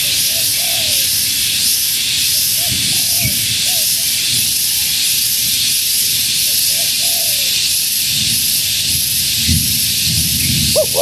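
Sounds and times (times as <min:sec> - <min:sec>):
steady high-pitched hiss: 0:00.0 - 0:11.0
dove cooing: 0:10.6 - 0:11.0.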